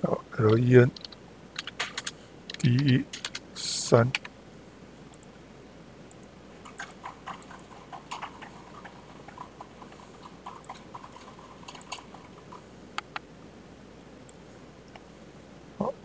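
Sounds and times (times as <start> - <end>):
computer mouse clicks: 0.5 - 3.4, 5.1 - 5.3, 13.0 - 13.3.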